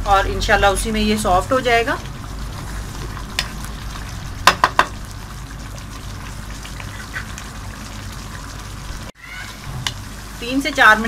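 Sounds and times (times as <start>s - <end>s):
chicken sizzling in a pot: 0.1s - 11.0s
wooden spoon knocking on pot: 4.4s - 5.0s.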